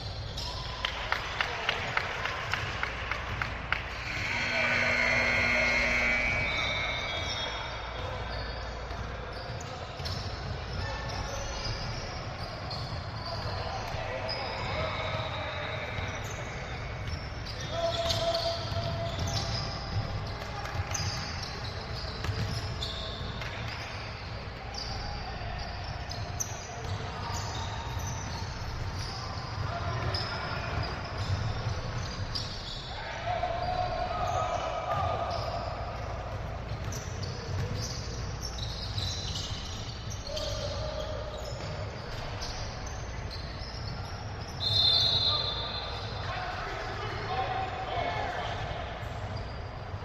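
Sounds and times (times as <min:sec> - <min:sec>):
shrill tone: 0:03.9 - 0:08.3
sneaker squeaks: 0:03.9 - 0:46.4
sneakers squeaking on court: 0:16.2 - 0:25.0, 0:35.3 - 0:46.3.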